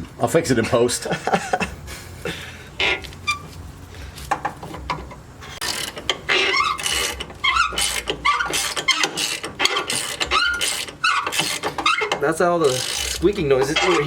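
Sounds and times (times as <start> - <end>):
squeaking: 2.8 - 3.7, 4.3 - 14.0.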